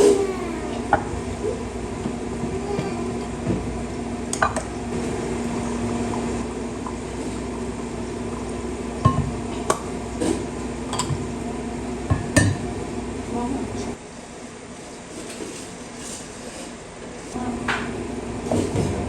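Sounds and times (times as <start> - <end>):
steady low hum: 0.0 - 14.4
dishes and utensils clinking: 9.0 - 11.2.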